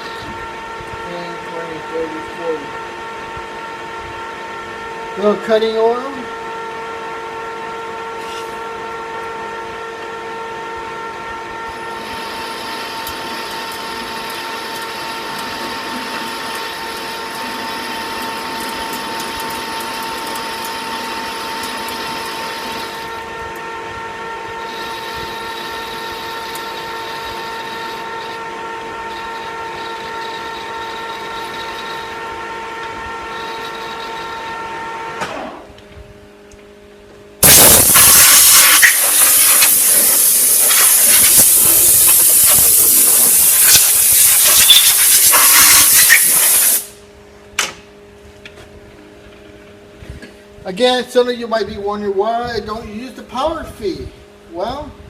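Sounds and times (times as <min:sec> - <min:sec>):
metal lathe gear whine: 0:00.0 - 0:35.6, 0:37.4 - 0:47.0
lathe cutting steel: 0:11.9 - 0:23.3, 0:24.6 - 0:34.8, 0:37.4 - 0:47.0
loud hiss: 0:37.4 - 0:47.1.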